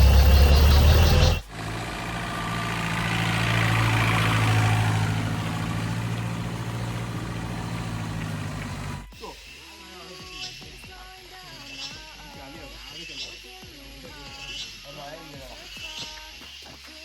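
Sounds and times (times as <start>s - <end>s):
off-road vehicle engine running: 0.0s - 9.2s.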